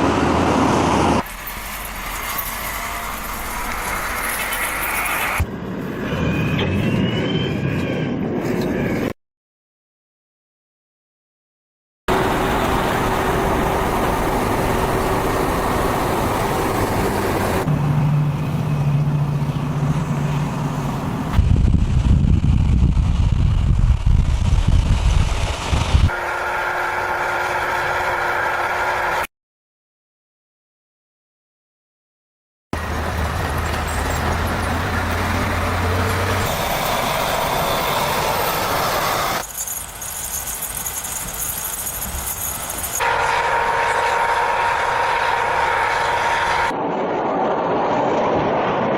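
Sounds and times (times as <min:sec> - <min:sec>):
engine low drone: 0:12.1 - 0:29.3, 0:32.8 - 0:39.7
vehicle engine humming: 0:12.1 - 0:29.3, 0:32.8 - 0:47.5.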